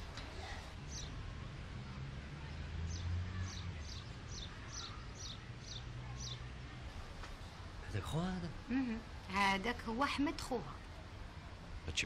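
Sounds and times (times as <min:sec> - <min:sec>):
small bird chirping: 0:00.5 - 0:01.2, 0:02.9 - 0:06.5.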